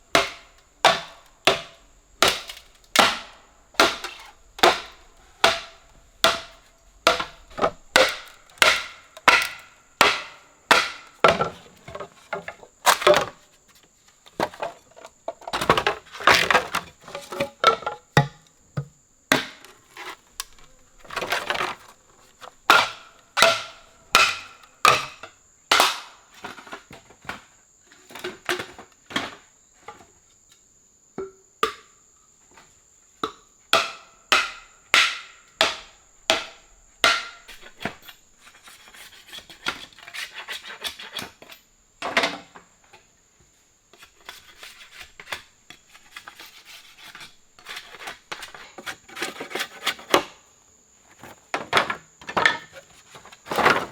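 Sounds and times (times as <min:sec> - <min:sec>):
tool striking wood: 0:00.1 - 0:11.5.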